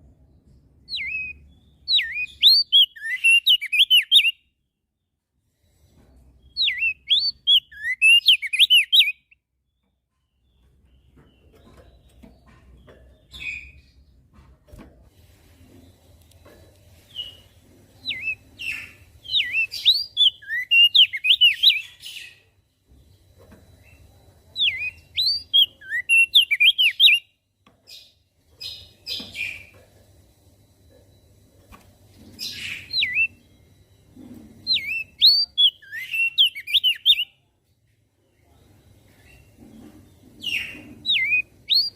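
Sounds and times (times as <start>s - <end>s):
bird chirps: 0.8s - 4.7s, 6.1s - 14.2s, 16.4s - 29.9s, 32.1s - 37.5s, 38.4s - 41.9s
bird twittering song: 0.8s - 5.1s, 6.2s - 14.2s, 17.0s - 29.8s, 32.2s - 33.7s, 34.3s - 37.4s, 39.1s - 41.9s.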